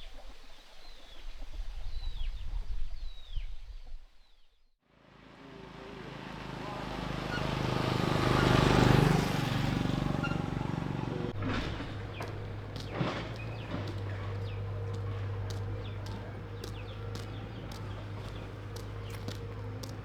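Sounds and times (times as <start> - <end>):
vehicle engine passing by: 4.9 - 20.0.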